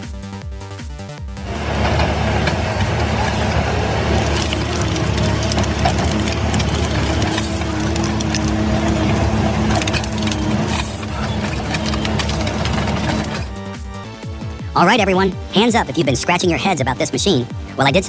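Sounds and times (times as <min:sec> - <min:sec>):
wood cracking and splintering: 0:01.4 - 0:13.6
machine engine running: 0:01.4 - 0:14.3.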